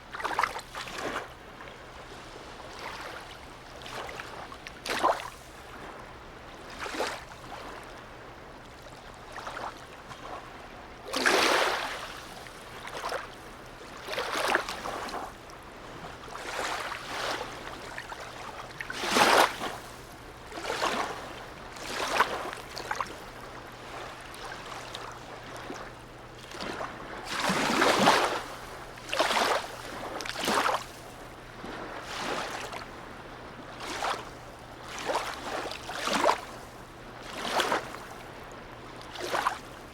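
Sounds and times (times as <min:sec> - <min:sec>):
small waves splashing against quay: 0:00.0 - 0:39.9
steady wash of water: 0:11.1 - 0:39.9.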